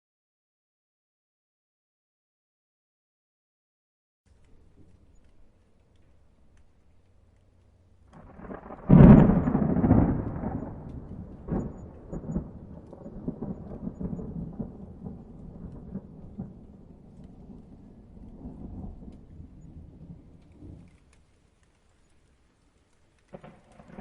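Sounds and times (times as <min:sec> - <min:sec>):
thunder crack and rumble: 0:08.0 - 0:21.4, 0:23.2 - 0:24.0.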